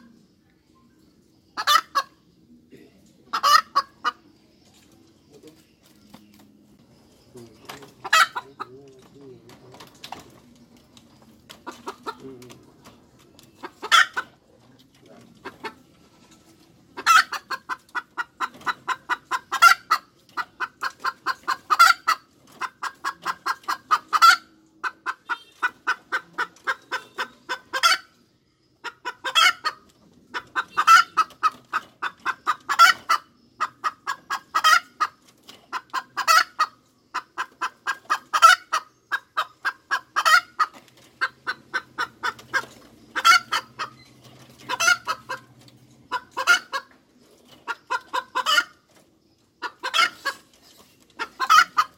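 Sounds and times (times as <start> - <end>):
hen cackling: 1.5 - 2.2, 3.2 - 4.3, 7.9 - 8.8, 13.6 - 14.5, 16.9 - 28.2, 28.8 - 45.5, 46.1 - 46.9, 47.6 - 48.9, 49.6 - 50.5, 51.2 - 51.9.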